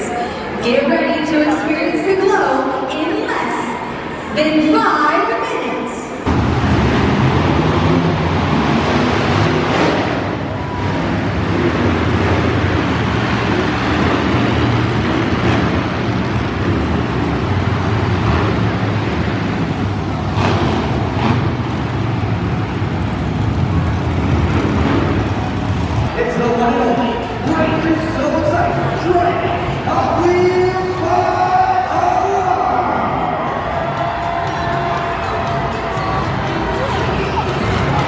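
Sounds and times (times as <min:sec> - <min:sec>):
truck engine running loudly: 0:06.3 - 0:38.0.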